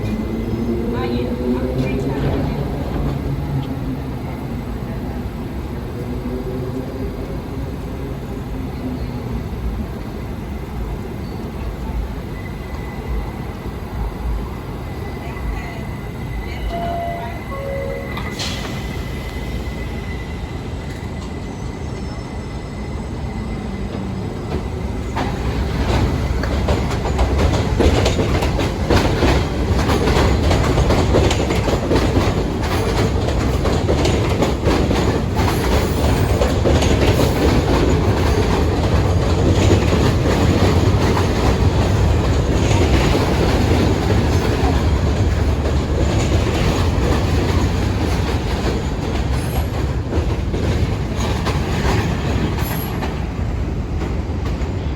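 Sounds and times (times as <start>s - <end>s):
train wheels clattering on rails: 23.6s - 54.9s.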